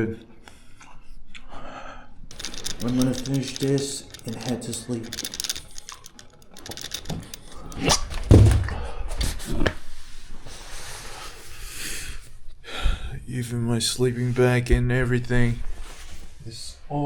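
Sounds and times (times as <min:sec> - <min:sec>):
rustling: 0:02.3 - 0:08.4.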